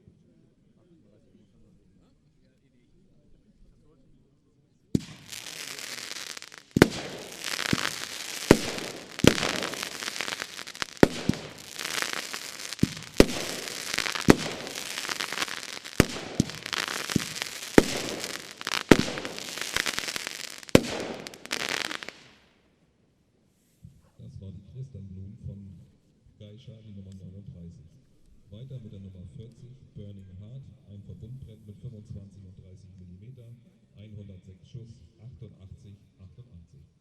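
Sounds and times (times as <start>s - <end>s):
firework bangs: 5.0s - 22.4s
firework crackling: 5.0s - 22.4s.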